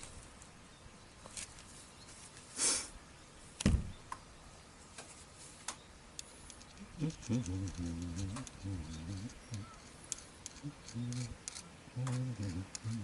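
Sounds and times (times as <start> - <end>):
rustle: 0.0 - 13.0.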